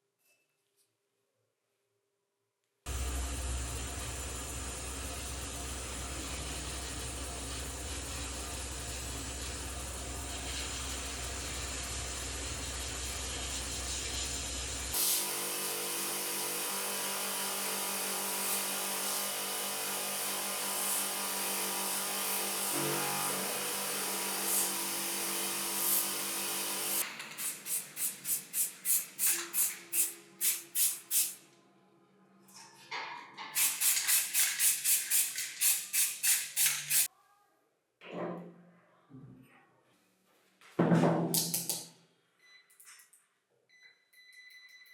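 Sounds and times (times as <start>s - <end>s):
power tool running: 2.9s - 27.1s.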